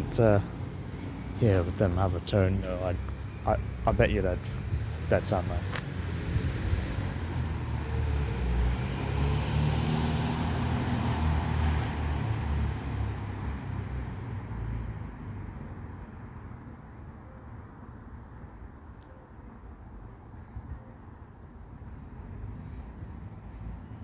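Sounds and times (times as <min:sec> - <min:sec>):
heavy vehicle passing: 0:00.0 - 0:14.6.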